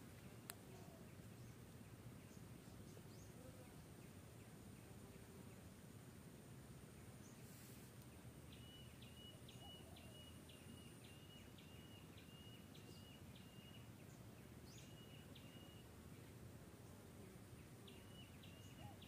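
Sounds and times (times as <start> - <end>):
distant bird chirping: 7.2 - 16.4, 17.2 - 19.0.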